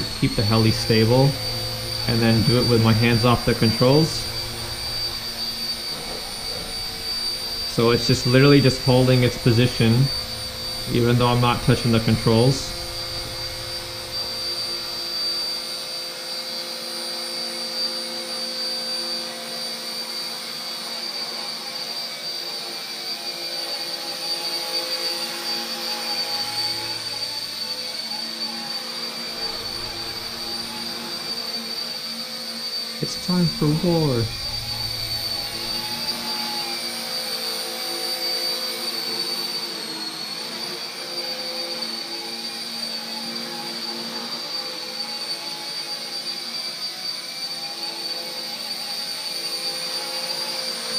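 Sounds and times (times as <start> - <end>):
rotor blades humming: 0.0 - 15.8, 29.3 - 31.5, 33.0 - 37.7
toy helicopter rotor whine: 0.0 - 50.9.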